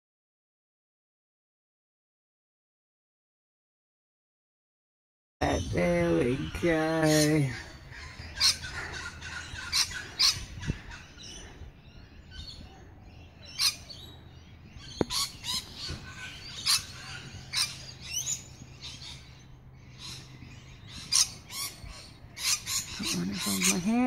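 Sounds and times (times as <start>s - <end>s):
birds chirping and squawking: 5.4s - 24.0s.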